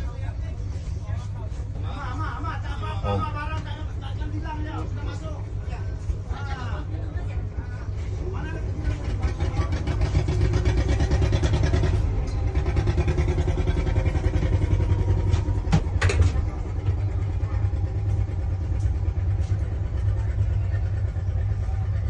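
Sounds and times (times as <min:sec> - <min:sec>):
boat engine chugging: 0:00.0 - 0:22.0.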